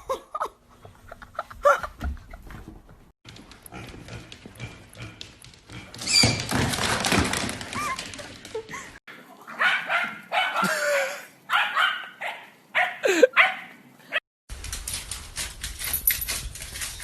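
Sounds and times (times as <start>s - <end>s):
dog barking and whimpering: 9.4s - 14.2s.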